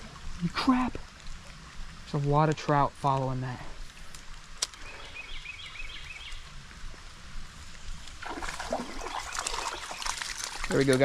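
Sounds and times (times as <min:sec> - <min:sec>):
creek water running: 0:00.0 - 0:11.0
fish splashing at the surface: 0:08.2 - 0:11.0.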